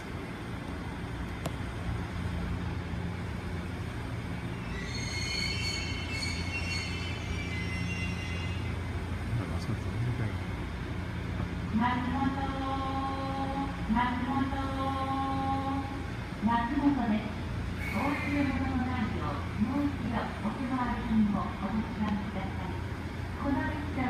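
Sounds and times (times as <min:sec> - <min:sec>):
electric train rumbling: 0:00.0 - 0:24.0
wheel and brake squeal: 0:04.6 - 0:08.8.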